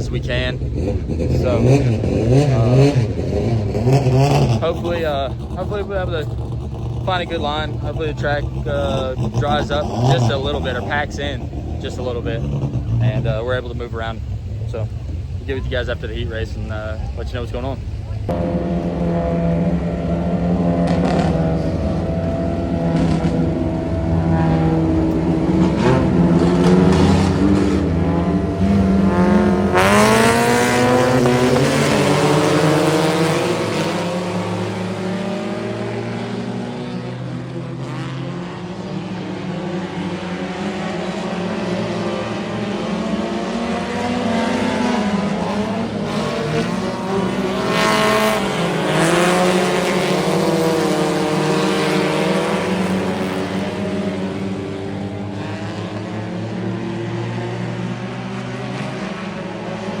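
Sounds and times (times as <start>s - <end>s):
race car engines revving: 0.0s - 60.0s.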